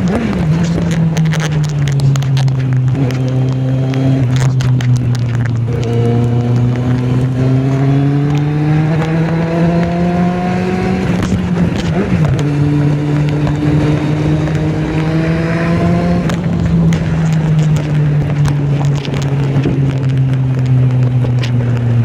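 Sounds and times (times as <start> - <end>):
motorcycle engine under load: 0.0 - 22.0.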